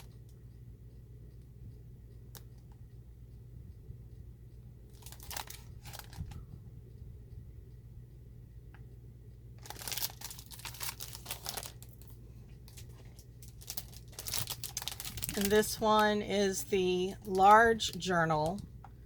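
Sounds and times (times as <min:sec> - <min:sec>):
low hum: 0:00.0 - 0:19.0
plastic packaging crinkling: 0:04.9 - 0:06.4, 0:09.6 - 0:18.6.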